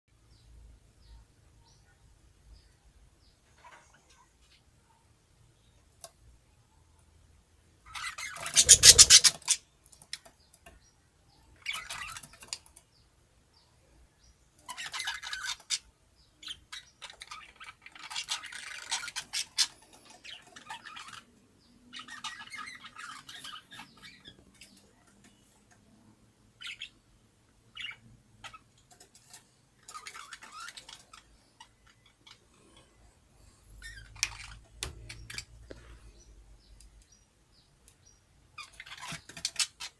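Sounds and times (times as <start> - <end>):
budgie chick squawking: 7.9 - 9.6.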